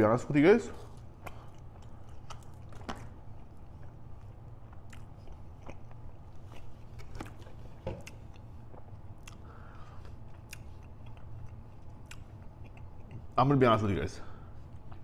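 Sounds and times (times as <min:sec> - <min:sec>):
man chewing with mouth clicks: 0:01.0 - 0:13.4, 0:14.6 - 0:15.0
lip smacks: 0:04.7 - 0:13.3.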